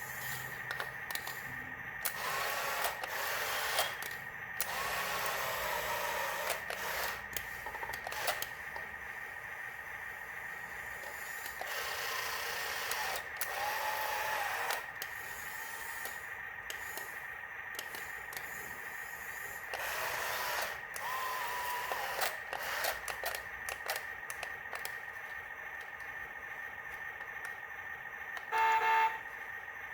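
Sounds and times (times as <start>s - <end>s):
toy electric motors whirring: 0.0s - 9.0s, 10.6s - 26.2s
steady high-pitched whine: 0.0s - 29.9s
scattered clicks: 20.6s - 26.1s.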